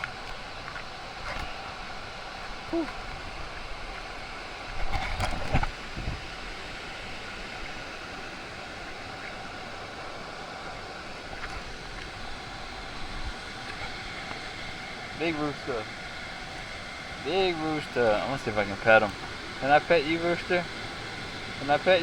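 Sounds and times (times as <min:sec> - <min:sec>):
waterfall rushing: 0:05.7 - 0:22.0.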